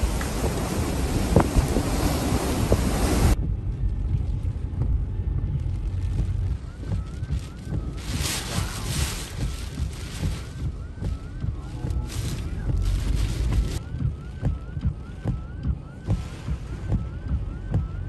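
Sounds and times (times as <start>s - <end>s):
wind-driven rain hissing: 0.0s - 3.4s, 5.5s - 13.8s, 16.0s - 16.9s
storm wind buffeting microphone: 0.0s - 18.0s.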